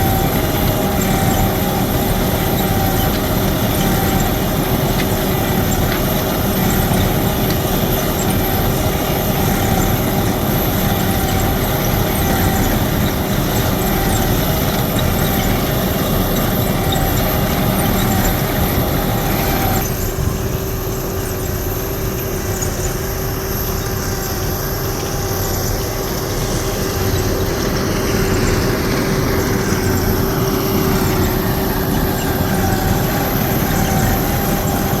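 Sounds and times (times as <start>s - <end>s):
machine engine drone: 0.0s - 35.0s
steady machine whine: 0.0s - 35.0s.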